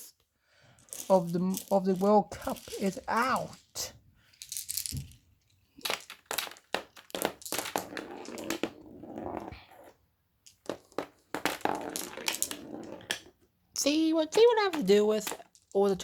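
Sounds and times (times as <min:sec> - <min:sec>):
glass marbles clicking: 0:05.8 - 0:08.7, 0:10.4 - 0:13.3, 0:14.3 - 0:15.9.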